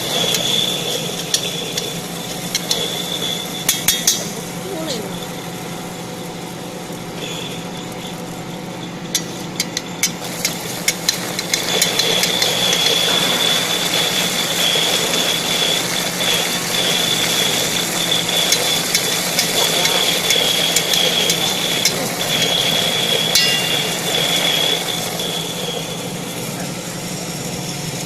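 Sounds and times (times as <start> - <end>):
grinder machine hum: 0.0 - 28.0
high machine whine: 0.0 - 28.0.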